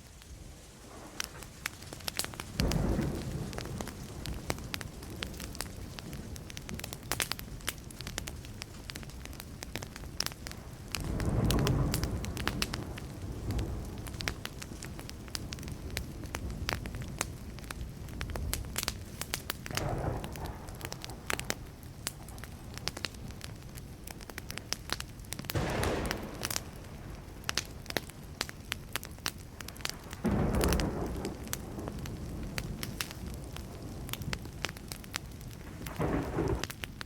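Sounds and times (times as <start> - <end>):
campfire crackling: 0.0 - 37.0
distant thunder rumbling: 1.0 - 6.9, 10.5 - 19.0, 19.6 - 24.8, 25.4 - 37.0.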